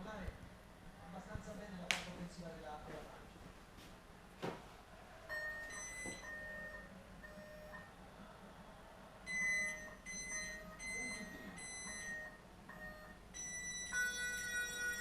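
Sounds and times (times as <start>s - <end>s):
electronic beeps: 5.3s - 7.9s, 9.3s - 15.0s
continuous electronic tone: 5.3s - 8.0s, 9.2s - 15.0s.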